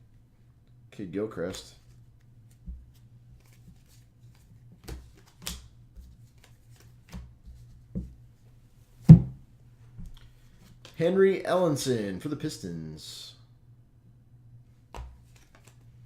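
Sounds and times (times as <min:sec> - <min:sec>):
cards tapping and rustling: 0:02.5 - 0:08.1, 0:14.9 - 0:15.9.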